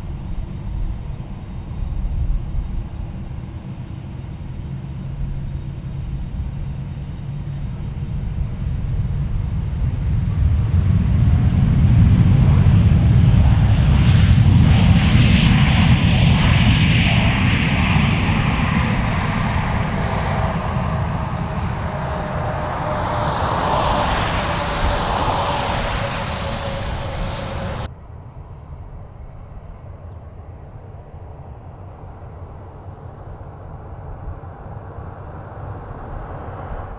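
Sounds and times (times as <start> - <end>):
jet airliner passing: 1.4 - 27.9.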